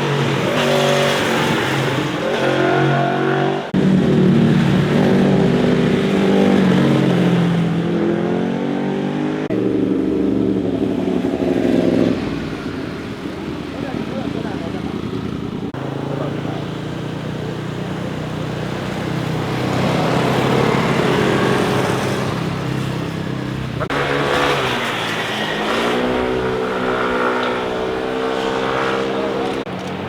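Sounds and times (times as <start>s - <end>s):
motorcycle accelerating: 0.0s - 30.0s
motorcycle engine running: 9.5s - 30.0s.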